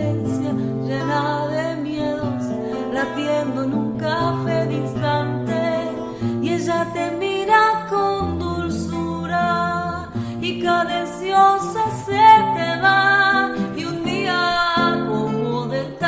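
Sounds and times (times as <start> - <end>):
guitar accompaniment: 0.0 - 16.0
person singing: 0.0 - 16.0.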